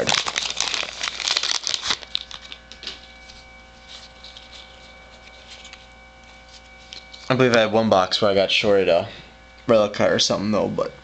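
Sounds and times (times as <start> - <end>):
wrapper crinkling and tearing: 0.0 - 7.3
cards rustling and ticking: 0.0 - 7.6
faint steady hum: 0.0 - 11.0.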